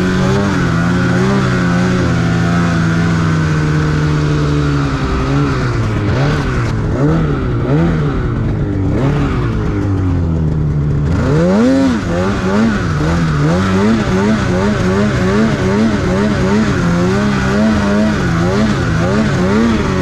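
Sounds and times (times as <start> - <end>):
snowmobile engine revving: 0.0 - 20.0.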